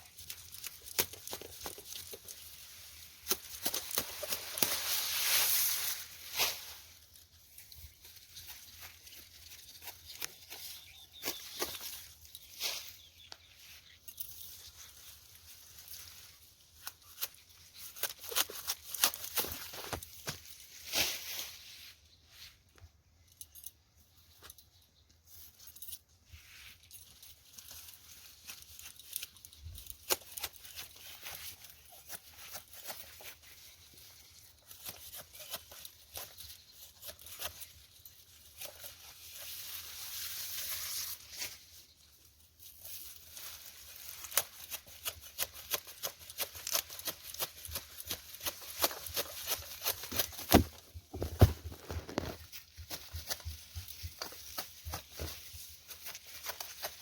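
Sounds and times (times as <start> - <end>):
leafy rustling: 0.0 - 22.2, 25.4 - 57.0
blade cutting grass stalks: 0.1 - 6.9, 16.8 - 21.4, 27.6 - 33.8, 34.4 - 41.7, 42.8 - 57.0.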